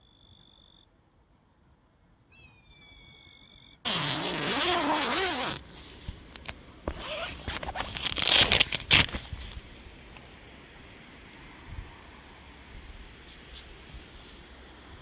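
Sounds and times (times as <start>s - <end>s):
crackling and rustling handling noise: 5.1s - 10.5s.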